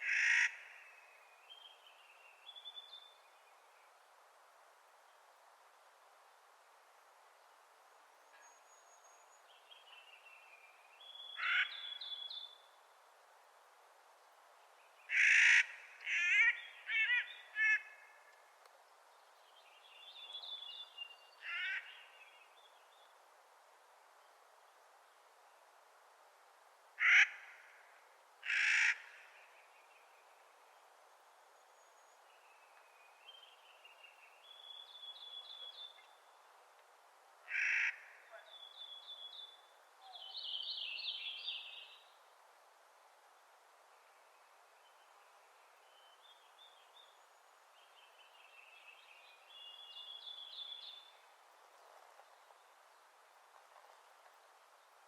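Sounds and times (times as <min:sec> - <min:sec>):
harsh rasping bird calls: 0:00.0 - 0:00.9, 0:11.3 - 0:12.2, 0:15.1 - 0:18.2, 0:21.4 - 0:22.1, 0:27.0 - 0:27.7, 0:28.4 - 0:29.3, 0:37.5 - 0:38.7.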